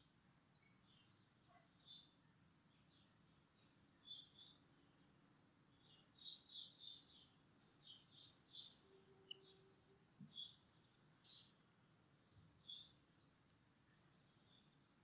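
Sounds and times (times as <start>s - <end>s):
background hiss: 0.0s - 15.0s
faint birds chirping: 0.0s - 15.0s.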